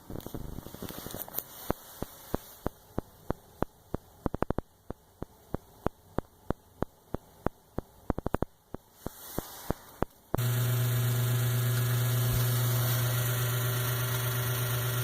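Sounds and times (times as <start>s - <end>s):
sharp clicks: 3.0s - 8.8s.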